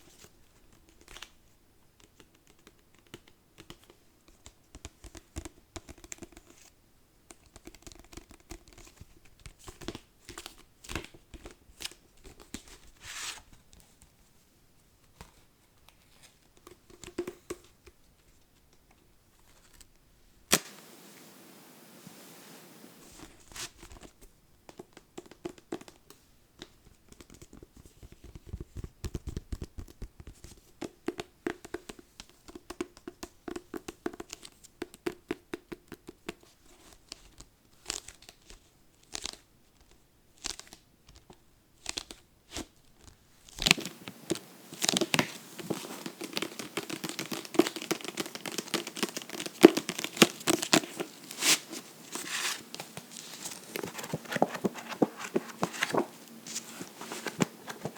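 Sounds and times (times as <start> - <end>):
paper rustling: 43.6 - 57.9
scratching on a book: 43.8 - 57.9.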